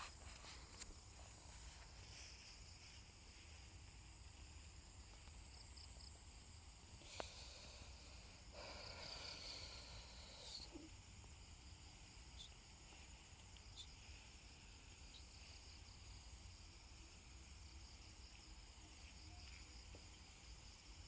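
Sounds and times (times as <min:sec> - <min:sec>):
insects chirping: 0:00.0 - 0:21.0
soft hiss: 0:00.0 - 0:21.0.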